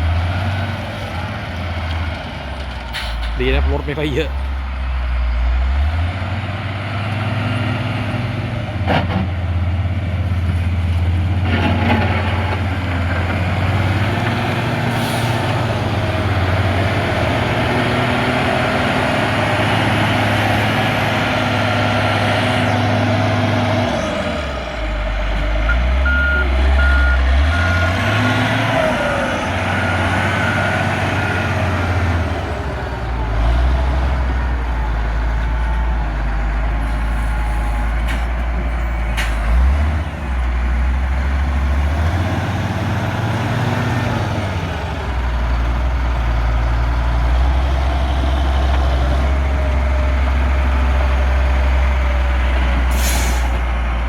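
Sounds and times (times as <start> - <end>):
diesel engine running under load: 0.0 - 54.0
reversing alarm beeping: 25.7 - 28.0, 29.7 - 31.9.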